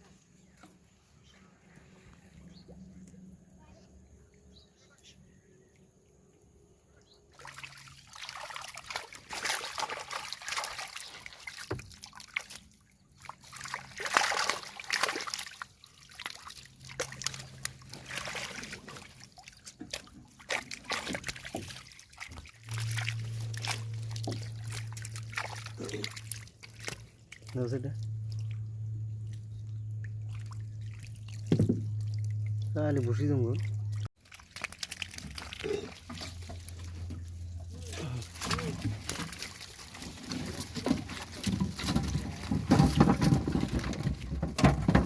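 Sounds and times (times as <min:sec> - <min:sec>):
water splashing and sloshing: 0:07.0 - 0:45.0.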